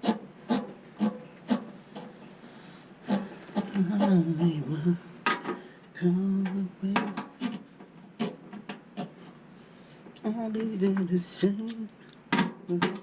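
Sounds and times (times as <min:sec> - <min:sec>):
man humming: 0:03.0 - 0:05.2, 0:05.9 - 0:07.6, 0:10.2 - 0:13.0.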